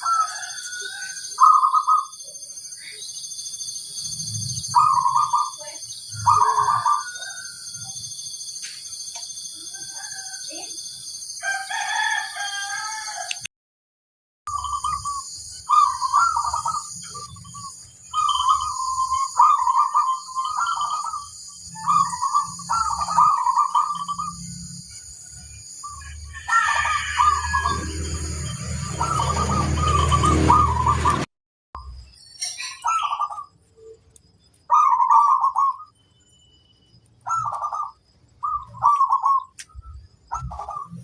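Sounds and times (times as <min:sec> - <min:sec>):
dove cooing: 0:00.0 - 0:02.2, 0:04.6 - 0:05.6, 0:06.2 - 0:07.5, 0:14.5 - 0:24.4, 0:26.4 - 0:31.3, 0:34.7 - 0:35.9, 0:37.3 - 0:41.0.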